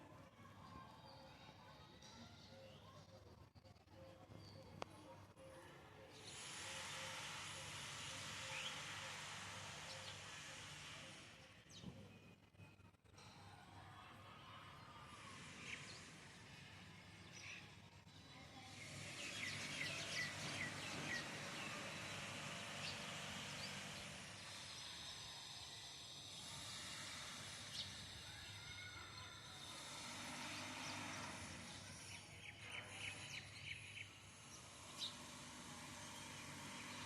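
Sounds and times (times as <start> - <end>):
birds chirping: 19.0 - 24.2.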